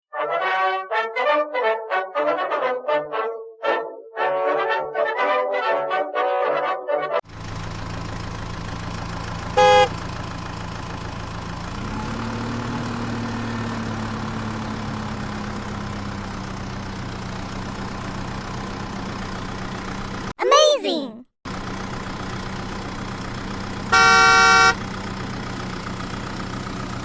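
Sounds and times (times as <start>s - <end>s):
vehicle engine idling: 7.3s - 11.9s, 12.9s - 20.3s, 21.5s - 27.0s
horn honk: 9.6s - 10.0s, 23.9s - 24.8s.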